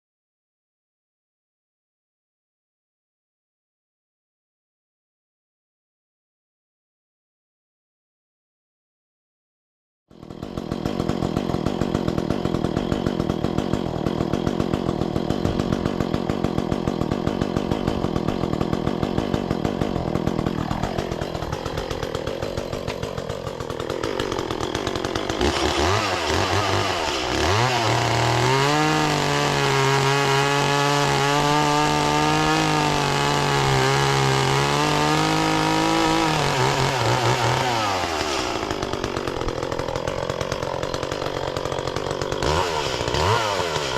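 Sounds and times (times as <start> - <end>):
chainsaw engine revving: 10.1 - 43.9.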